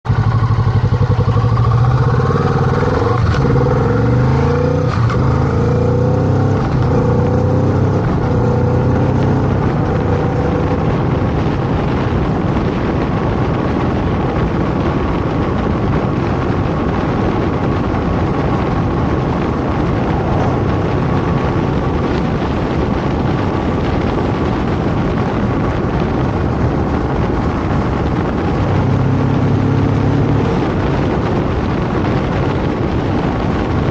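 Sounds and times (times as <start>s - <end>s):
motorcycle engine accelerating: 0.0s - 33.9s
wind noise: 0.0s - 33.9s.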